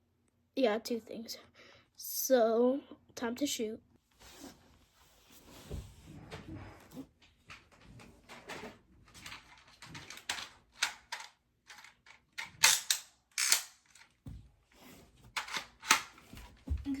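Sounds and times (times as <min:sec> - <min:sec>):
toy blaster plastic clicking: 0:10.3 - 0:14.1.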